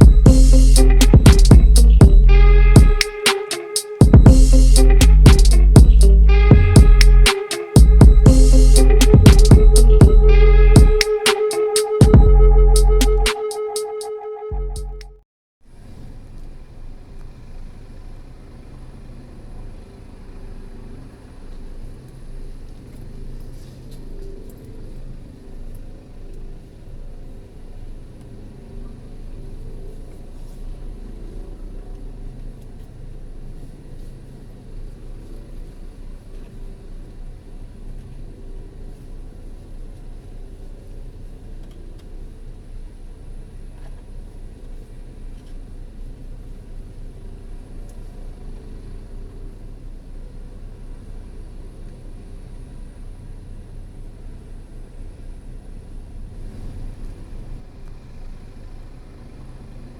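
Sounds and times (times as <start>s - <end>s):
helicopter hovering: 0.0s - 15.0s.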